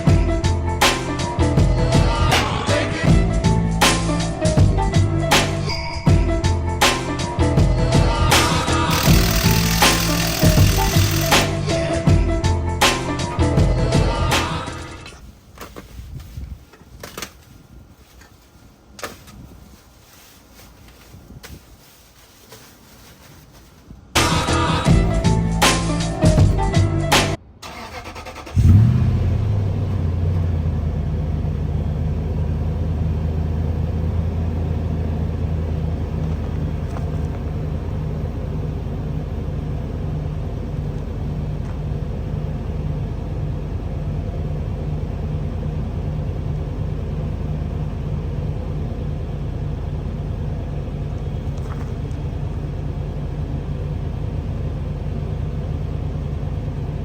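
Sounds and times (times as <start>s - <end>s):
car engine starting and idling: 7.5s - 15.3s, 24.2s - 57.0s.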